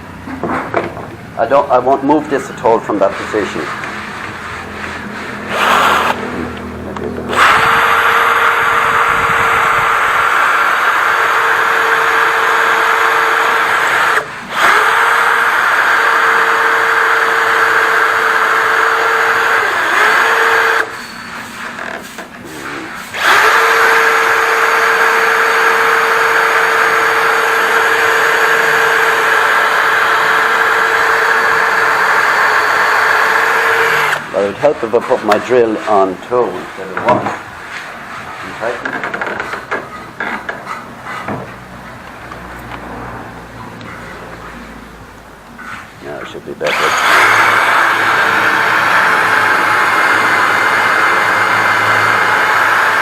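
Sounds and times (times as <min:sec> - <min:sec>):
power drill boring into wood: 0:05.4 - 0:06.2, 0:07.3 - 0:21.1, 0:22.6 - 0:34.5, 0:46.6 - 0:53.0.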